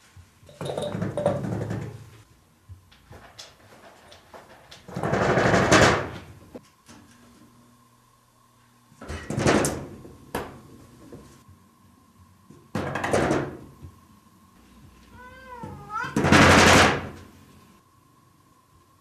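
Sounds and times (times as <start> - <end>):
cat meowing: 15.1 - 16.3.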